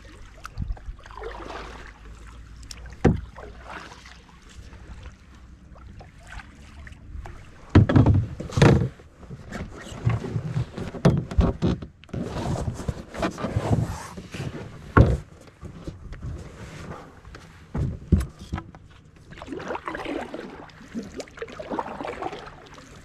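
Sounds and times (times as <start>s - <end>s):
knocks and rustling in canoe: 0.1s - 23.0s
paddle bumping canoe hull: 2.8s - 4.1s, 7.6s - 12.0s.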